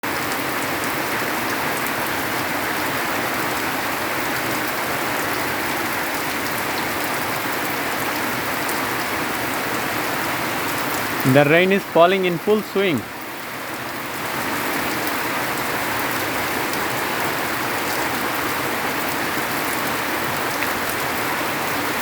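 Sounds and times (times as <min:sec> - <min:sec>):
raindrops pattering on surfaces: 0:00.0 - 0:22.0.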